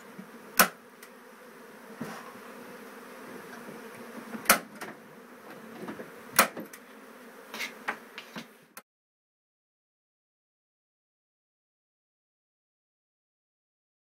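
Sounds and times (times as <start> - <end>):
honeybees buzzing: 0.0 - 8.8.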